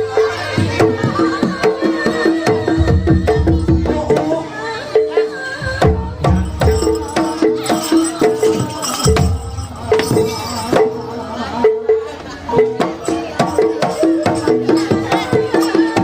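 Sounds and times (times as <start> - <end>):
gamelan music: 0.0 - 16.0
drum hits: 5.7 - 11.0.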